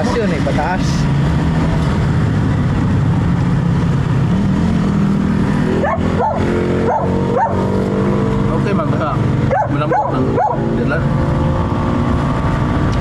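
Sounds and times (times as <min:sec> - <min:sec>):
vehicle engine running: 0:00.0 - 0:13.0
dog barking: 0:05.8 - 0:07.7, 0:09.5 - 0:10.7.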